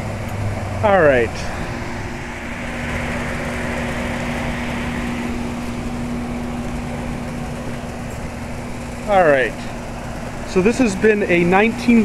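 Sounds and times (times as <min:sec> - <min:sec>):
rush of air: 0:01.3 - 0:07.4.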